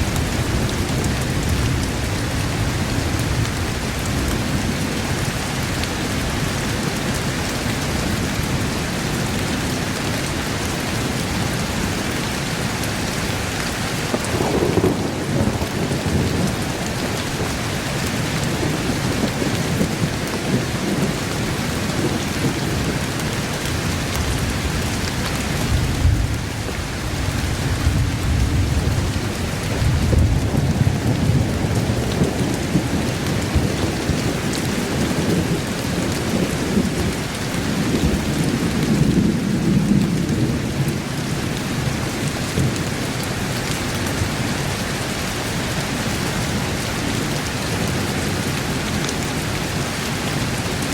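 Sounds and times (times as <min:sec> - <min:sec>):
heavy rain: 0:00.0 - 0:50.9
rolling thunder: 0:13.7 - 0:43.2.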